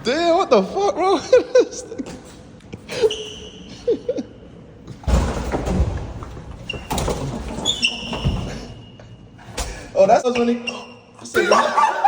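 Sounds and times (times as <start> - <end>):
elevator doors sliding: 4.8 - 10.4.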